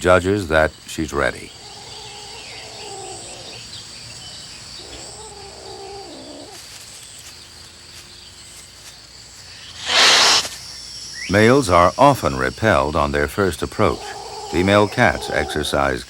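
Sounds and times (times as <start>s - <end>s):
crickets chirping: 0.0s - 16.0s
cat yowling: 1.7s - 3.6s, 9.8s - 10.5s, 14.0s - 15.8s.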